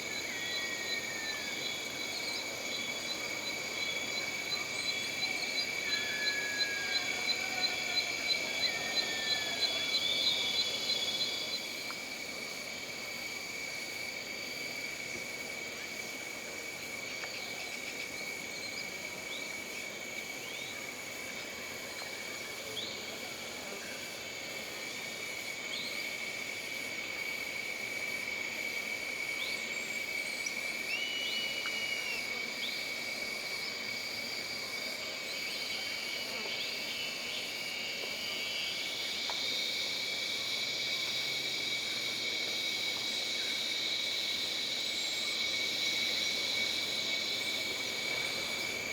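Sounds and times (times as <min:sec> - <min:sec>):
insects droning: 0:00.0 - 0:48.9.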